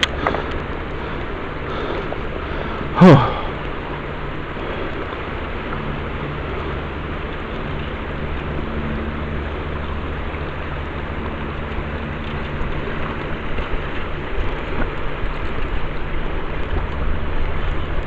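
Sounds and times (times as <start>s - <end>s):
low even hum: 0.0s - 18.0s
river water rushing: 0.0s - 18.0s.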